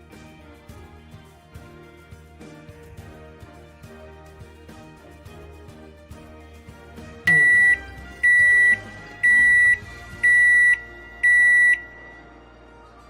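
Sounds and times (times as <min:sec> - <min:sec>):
background music: 0:00.0 - 0:13.0
microwave oven beeping: 0:07.3 - 0:12.2.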